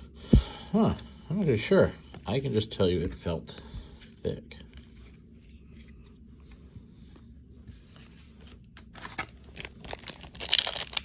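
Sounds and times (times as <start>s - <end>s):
foil wrapper rustling and crinkling: 8.8s - 11.0s.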